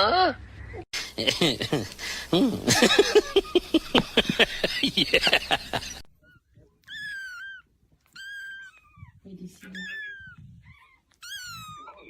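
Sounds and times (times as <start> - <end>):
cat meowing: 6.2 - 12.0.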